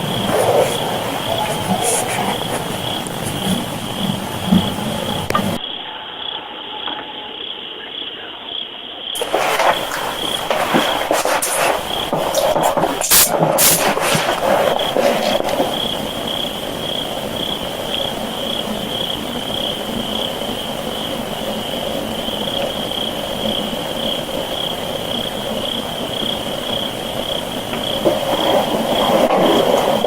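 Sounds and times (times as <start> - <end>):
heavy hiss: 0.0 - 5.6, 9.2 - 30.0
high-pitched calling chorus: 0.0 - 19.7
sharp clicks and knocks: 4.5 - 5.6.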